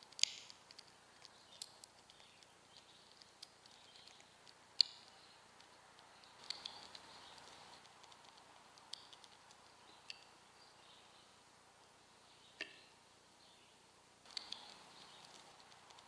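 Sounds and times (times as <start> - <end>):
sharp clicks: 0.0 - 10.3, 14.2 - 16.0
distant bird chirps: 0.0 - 11.4.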